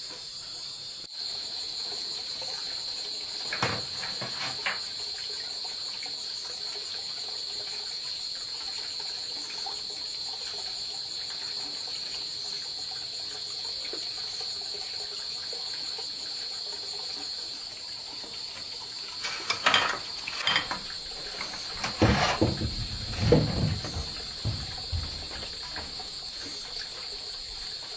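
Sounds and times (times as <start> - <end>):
crickets trilling: 0.0 - 27.9
knocks and clatters: 3.4 - 4.9, 19.1 - 26.7.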